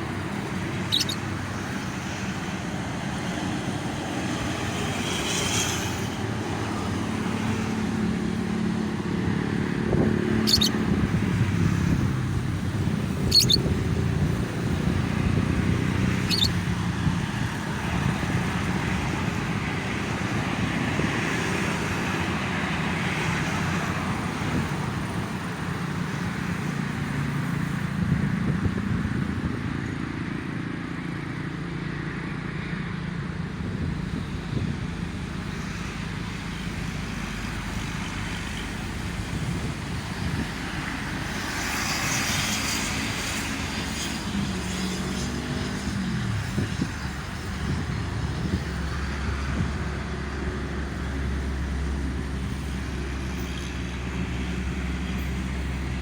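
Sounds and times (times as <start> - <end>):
road traffic rumble: 0.0 - 56.0
high lovebird chirps: 0.8 - 1.2, 10.4 - 10.8, 13.2 - 13.7, 16.2 - 16.6.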